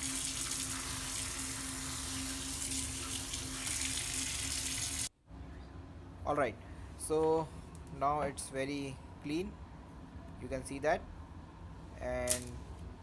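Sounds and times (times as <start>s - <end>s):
running water splashing: 0.0s - 5.1s.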